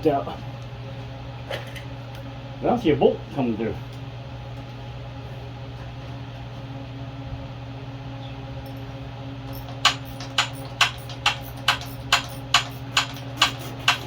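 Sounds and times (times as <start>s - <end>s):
steady low hum: 0.0s - 14.0s
socket ratchet clicking: 9.5s - 14.0s.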